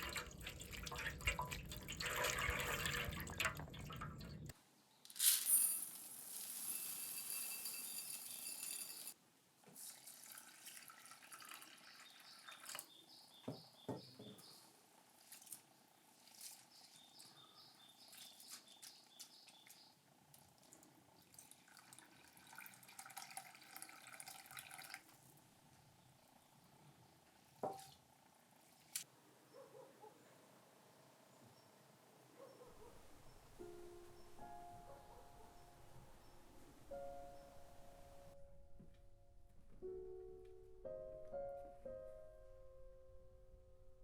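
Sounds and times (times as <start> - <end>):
water trickling and dripping: 0.0 - 4.5, 10.0 - 12.9, 19.6 - 25.2.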